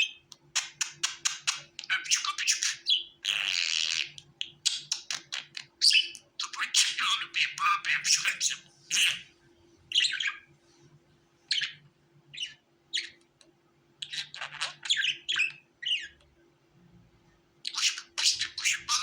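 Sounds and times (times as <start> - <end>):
budgerigar chirping and squawking: 0.0 - 9.3, 9.9 - 10.4, 11.5 - 13.2, 14.0 - 16.2, 17.6 - 19.0.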